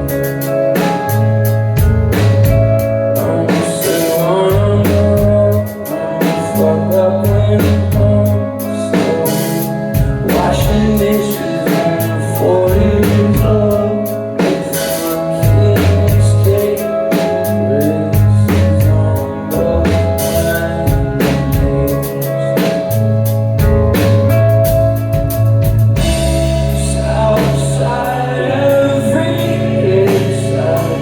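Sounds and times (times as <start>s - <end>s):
person singing lead vocal: 0.0s - 23.6s, 26.0s - 31.0s
bass and guitar chords: 0.0s - 31.0s
drum kit with cymbals: 0.0s - 31.0s.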